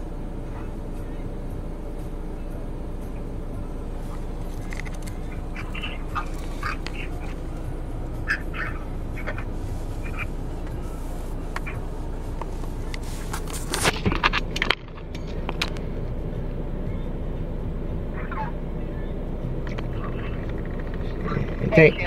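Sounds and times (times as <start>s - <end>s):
steady low hum: 0.0s - 22.0s
short animal calls: 5.3s - 7.4s, 8.2s - 10.4s
handling knocks and rustles: 9.2s - 15.8s.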